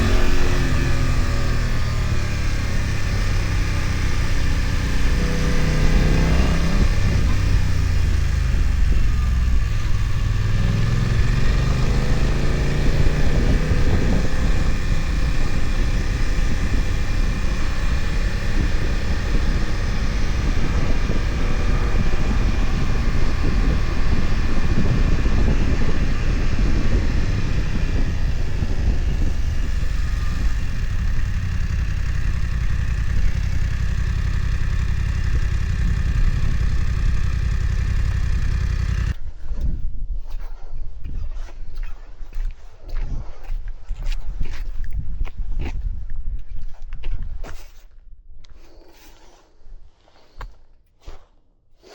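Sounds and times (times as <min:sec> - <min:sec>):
motorcycle engine revving: 0:00.0 - 0:39.2.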